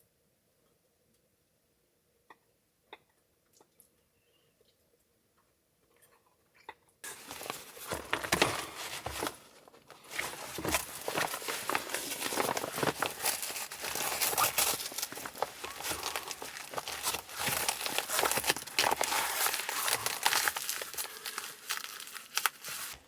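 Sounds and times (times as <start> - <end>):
footsteps crunching through snow: 7.1 - 23.0.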